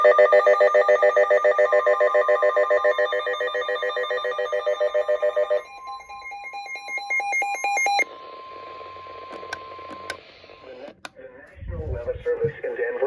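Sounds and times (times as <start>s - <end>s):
beeping alarm: 0.0s - 10.1s.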